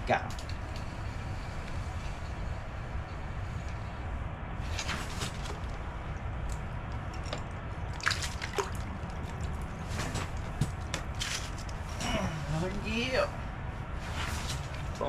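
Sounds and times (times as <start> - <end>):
water splashing and dripping: 7.8 - 9.6.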